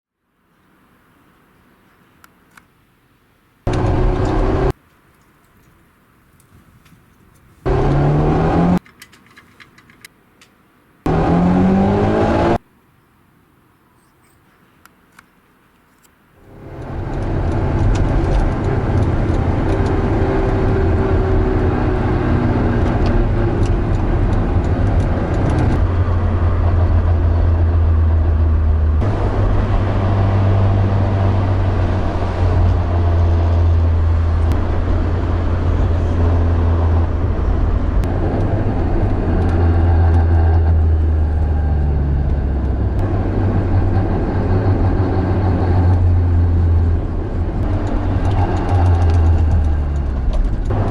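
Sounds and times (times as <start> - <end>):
car engine idling: 16.4 - 19.4.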